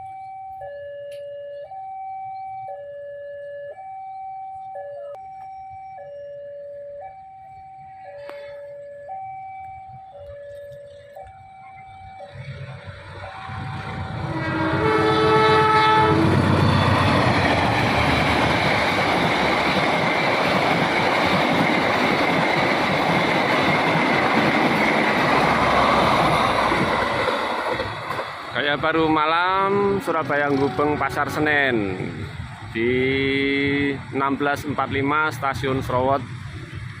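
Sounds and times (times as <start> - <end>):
train passing at speed: 11.9 - 37.0
locomotive horn blast: 13.4 - 17.0, 29.6 - 32.1.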